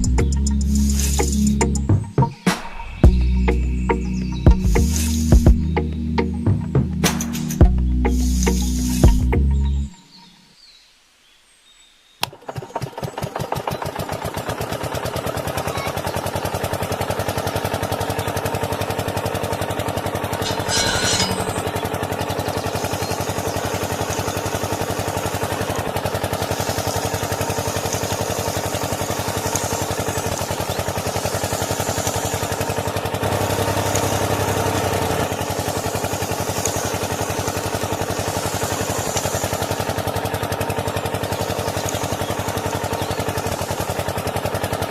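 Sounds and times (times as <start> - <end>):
tractor engine starting and running: 0.0 - 2.3, 3.0 - 9.9, 12.2 - 44.9
hissing burst: 35.4 - 39.8.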